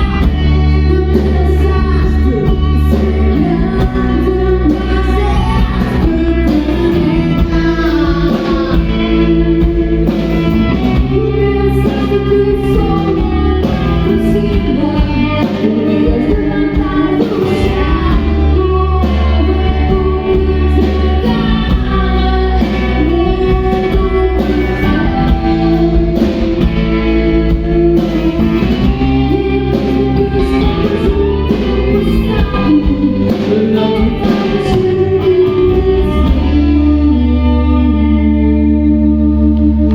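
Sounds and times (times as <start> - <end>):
electric guitar: 0.0 - 39.9
person singing: 0.0 - 39.9
steady bass line: 0.0 - 39.9.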